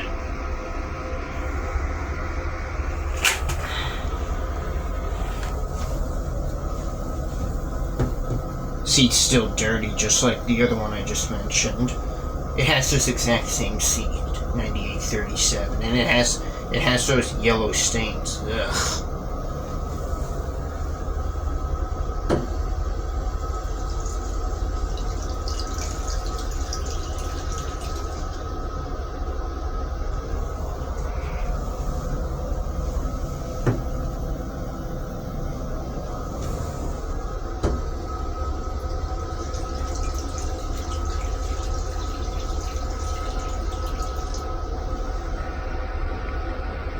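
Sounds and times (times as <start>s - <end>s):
train rumble: 0.0s - 46.9s
rinse water hissing: 1.2s - 46.9s
toilet flush click: 3.1s - 3.9s, 22.3s - 22.7s, 32.8s - 34.3s
rushing water: 23.1s - 28.6s, 36.3s - 45.5s.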